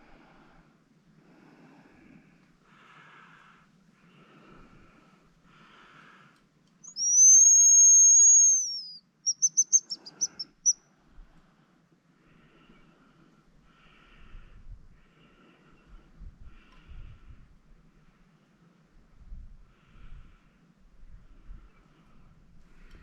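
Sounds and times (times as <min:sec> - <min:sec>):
decoy whistle long high whistle: 0:06.8 - 0:10.8
short high whistle notes: 0:06.9 - 0:10.6.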